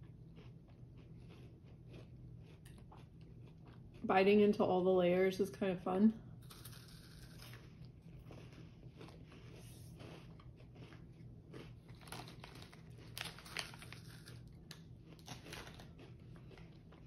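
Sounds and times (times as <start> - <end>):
chewing crunchy wafer bar: 0.0 - 4.1, 6.4 - 17.0
crisp cracks: 6.4 - 16.7.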